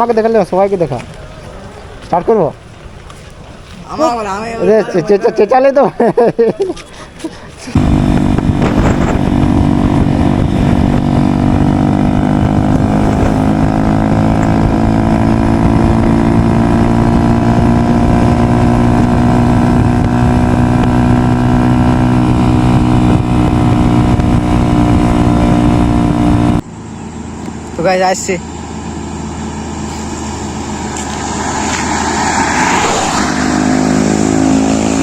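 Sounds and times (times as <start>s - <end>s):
motorcycle engine running loud: 7.8s - 26.6s.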